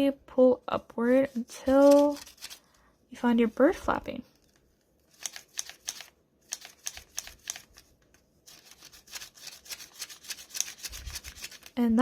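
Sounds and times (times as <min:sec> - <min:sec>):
paper clicks and rustles: 0:01.7 - 0:02.7, 0:04.3 - 0:11.8.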